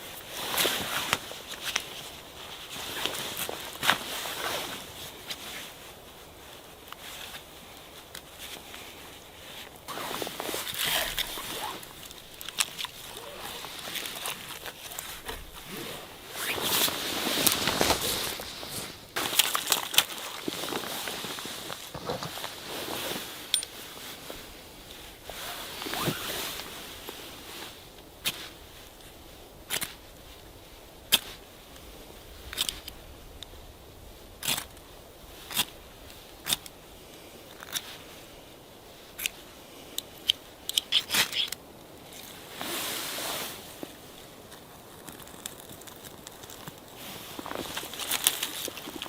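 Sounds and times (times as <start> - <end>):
sharp snaps and clicks: 36.4 - 36.8, 40.0 - 41.6.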